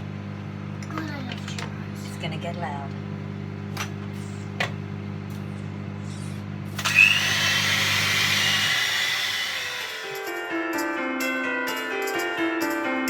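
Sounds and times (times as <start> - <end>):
electric hand mixer humming: 3.2 - 10.8.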